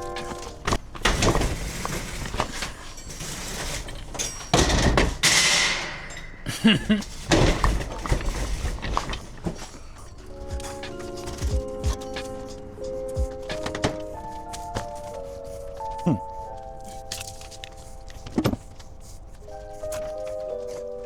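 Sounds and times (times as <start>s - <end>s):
hard objects clattering: 0.0s - 16.0s.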